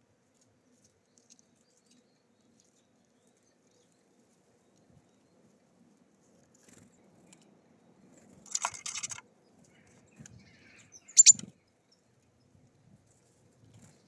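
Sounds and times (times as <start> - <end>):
beaks and claws tapping feeder: 8.5 - 9.2, 11.2 - 11.4.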